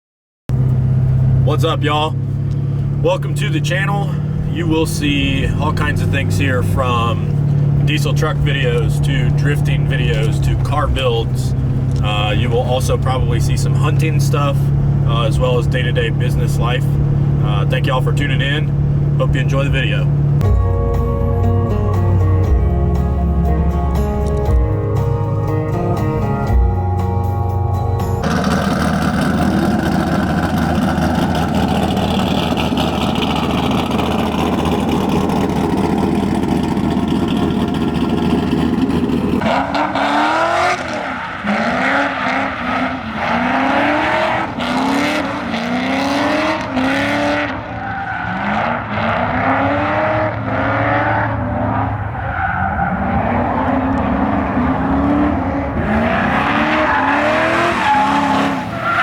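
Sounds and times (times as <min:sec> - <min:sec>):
car engine revving hard: 0:28.2 - 0:59.0
tyre squeal: 0:52.2 - 0:59.0.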